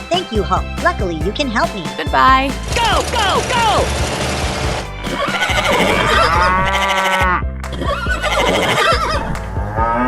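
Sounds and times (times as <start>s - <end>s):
background music: 0.0s - 10.0s
drawn-out animal call: 5.2s - 7.3s.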